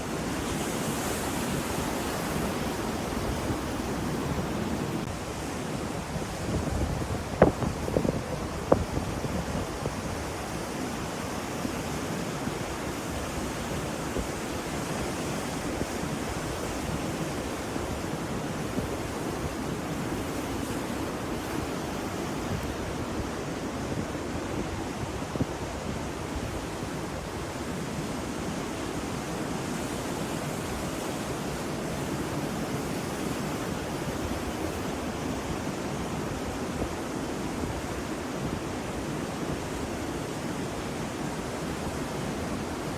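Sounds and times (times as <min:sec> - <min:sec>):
ocean waves washing: 0:00.0 - 0:42.9.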